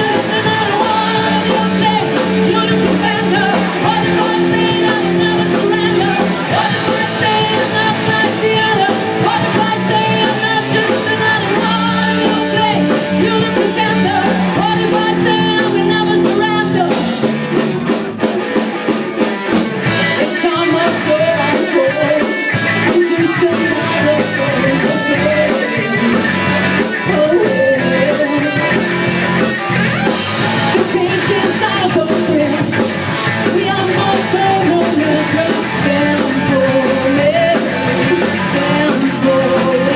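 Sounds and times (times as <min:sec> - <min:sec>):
person singing: 0:00.0 - 0:17.3, 0:19.3 - 0:39.9
guitar: 0:00.0 - 0:39.9
rock band playing live: 0:00.0 - 0:39.9.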